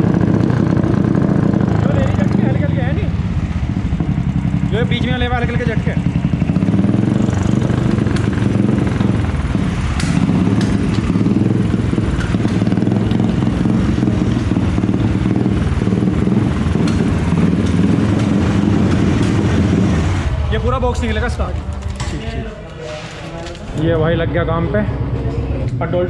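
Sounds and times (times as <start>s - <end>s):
motorcycle engine running: 0.0s - 22.1s.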